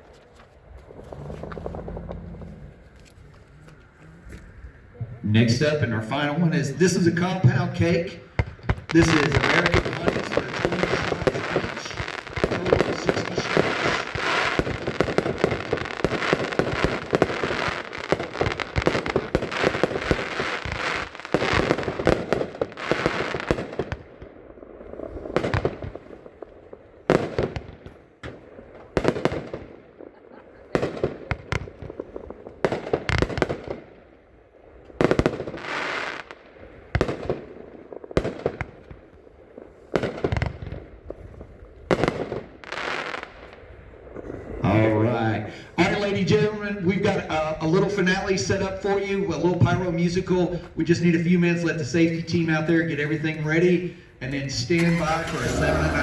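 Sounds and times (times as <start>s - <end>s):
fireworks crackling: 0.0s - 44.2s, 45.1s - 56.0s
fireworks booms: 4.9s - 44.3s, 54.4s - 56.0s.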